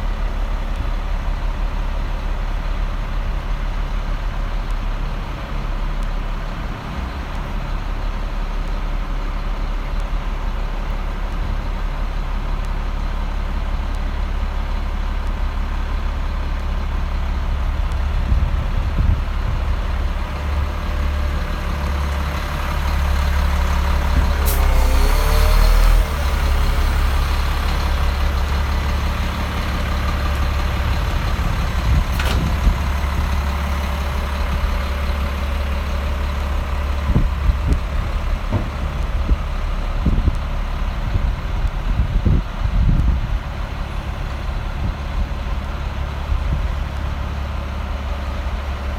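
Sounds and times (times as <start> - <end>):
truck diesel engine idling: 0.0 - 48.9.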